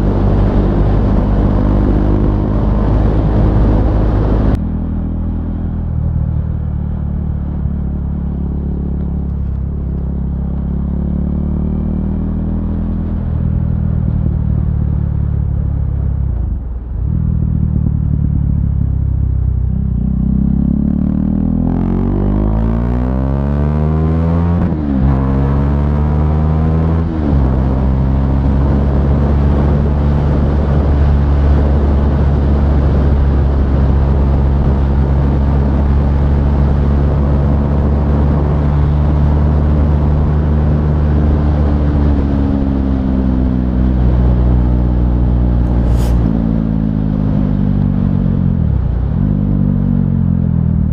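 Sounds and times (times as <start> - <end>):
motorcycle engine revving: 17.0 - 50.8.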